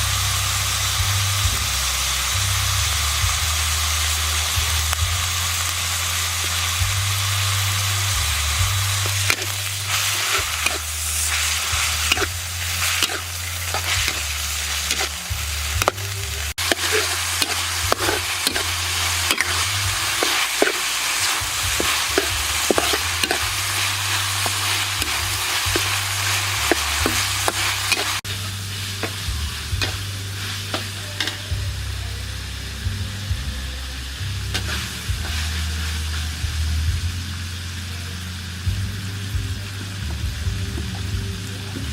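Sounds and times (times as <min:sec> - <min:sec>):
food sizzling in a hot pan: 0:00.0 - 0:41.9
spatula clicking and scraping a pan: 0:09.1 - 0:15.2, 0:16.6 - 0:28.3.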